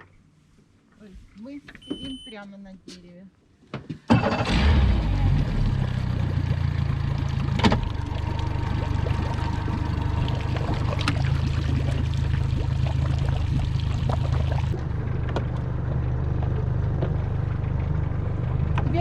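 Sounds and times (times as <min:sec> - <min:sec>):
outboard motor idling: 0:04.5 - 0:19.0.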